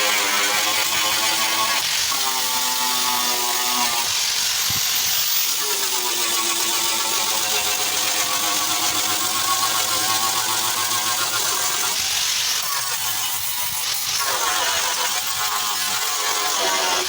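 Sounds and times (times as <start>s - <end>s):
motor running with hiss: 0.0s - 17.0s.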